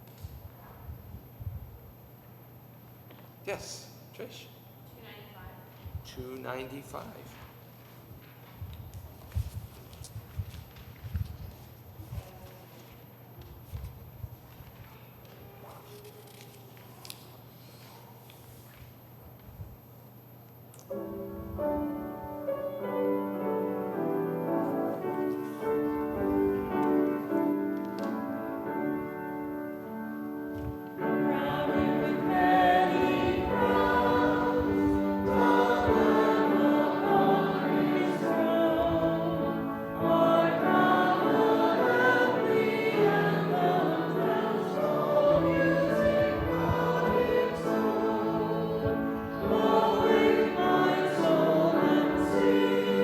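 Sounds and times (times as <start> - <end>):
congregation singing a hymn: 21.1 - 53.0.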